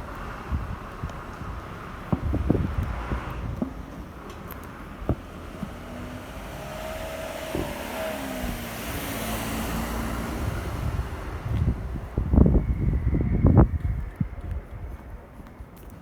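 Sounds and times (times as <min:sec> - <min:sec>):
vehicle passing by: 0:00.0 - 0:13.7.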